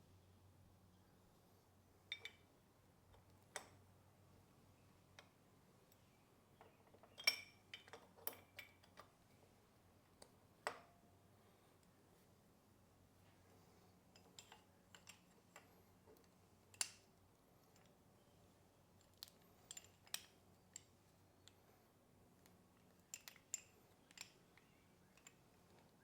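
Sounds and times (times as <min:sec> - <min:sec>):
hard objects clicking and clinking: 0:14.2 - 0:15.7, 0:19.0 - 0:20.9, 0:22.8 - 0:25.9.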